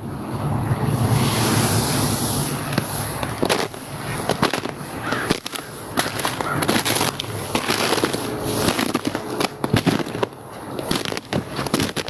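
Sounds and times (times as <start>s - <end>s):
wind hissing: 0.0s - 11.8s
footsteps crunching on ice: 2.6s - 12.0s.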